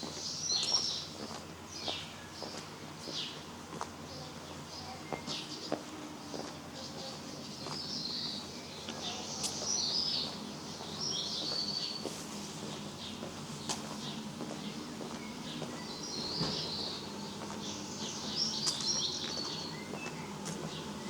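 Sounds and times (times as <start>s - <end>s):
small birds chirping and warbling: 0.0s - 3.4s, 4.0s - 21.0s
low steady background noise: 0.0s - 21.0s.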